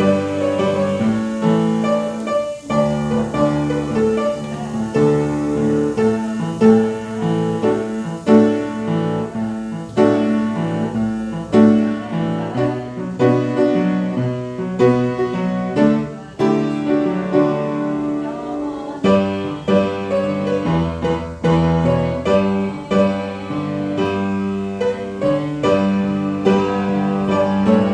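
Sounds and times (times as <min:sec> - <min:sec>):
piano playing slow chords: 0:00.0 - 0:27.9.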